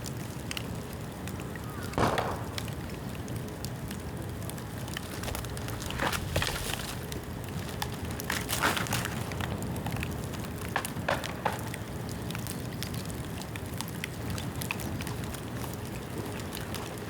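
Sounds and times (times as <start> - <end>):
bonfire crackling and popping: 0.0 - 17.0.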